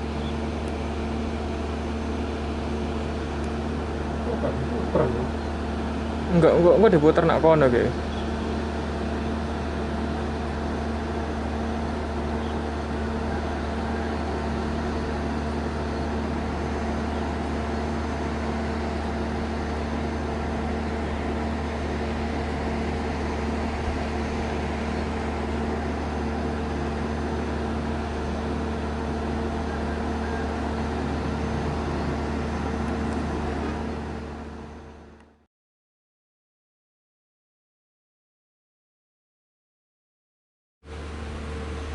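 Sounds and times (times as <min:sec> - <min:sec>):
passenger train droning: 0:02.5 - 0:35.2.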